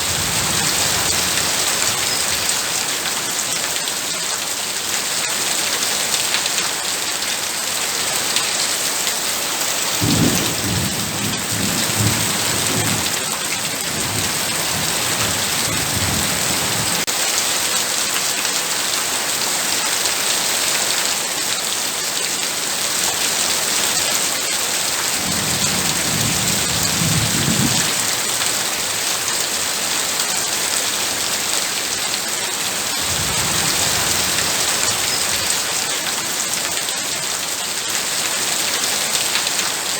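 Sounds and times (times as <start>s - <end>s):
heavy rain pouring: 0.0s - 39.9s
thunder rumbling: 25.2s - 28.1s, 33.0s - 35.7s.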